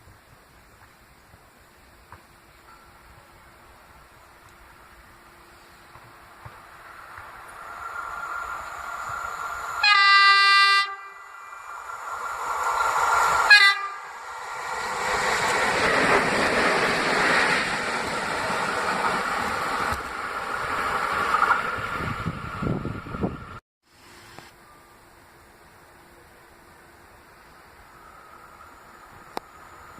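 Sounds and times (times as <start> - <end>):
train wheels rumbling on rails: 0.0 - 23.6
train horn blasts: 9.8 - 11.5, 13.5 - 14.2.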